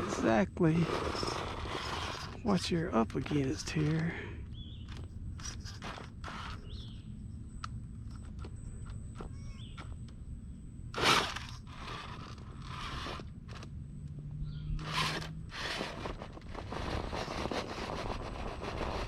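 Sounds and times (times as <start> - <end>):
electric motor whine: 0.0 - 4.2, 4.8 - 7.1, 10.9 - 19.0
tyres scraping on rock: 0.0 - 6.9, 11.0 - 13.7, 14.8 - 19.0.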